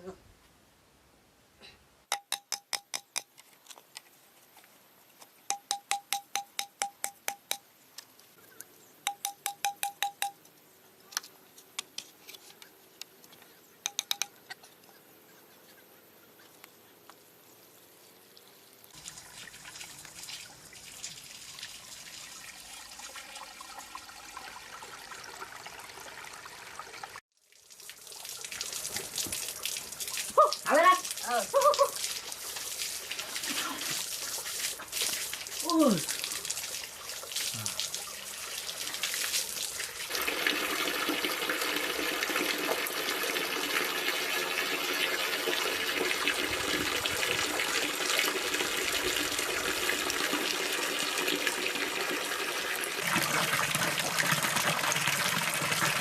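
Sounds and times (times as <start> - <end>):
rapid sharp ringing taps: 2.1 - 3.3, 5.5 - 7.7, 9.1 - 10.4, 13.9 - 14.4
water pouring: 18.4 - 56.0.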